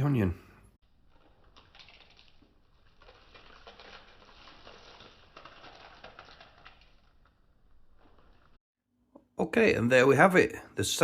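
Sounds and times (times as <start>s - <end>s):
fried onion pieces pattering: 1.0s - 8.6s.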